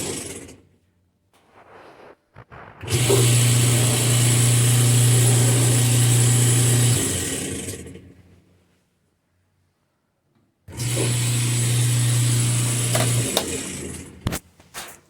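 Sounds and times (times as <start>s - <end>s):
harsh grinding noise: 1.4s - 7.7s
washing machine motor humming: 2.8s - 8.1s, 10.7s - 14.2s.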